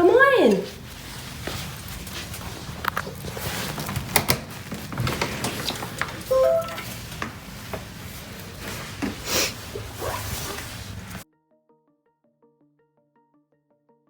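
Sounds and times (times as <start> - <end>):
high squeak: 5.7 - 7.2.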